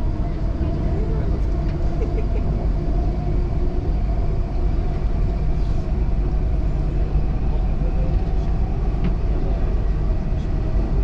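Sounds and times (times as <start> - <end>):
train wheels and motors rumbling: 0.0 - 11.0.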